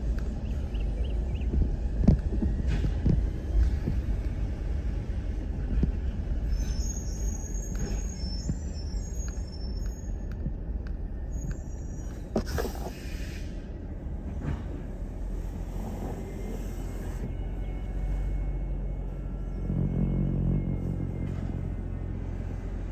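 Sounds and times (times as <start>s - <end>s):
diesel truck rumble: 0.0s - 22.9s
air hiss: 12.4s - 13.6s.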